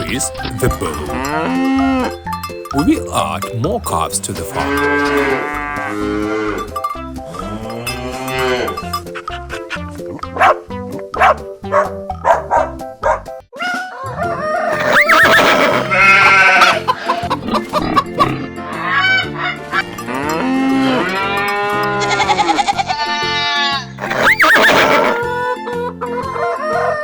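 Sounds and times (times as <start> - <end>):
farm animals honking: 0.0 - 2.2, 2.8 - 8.9, 14.6 - 25.2.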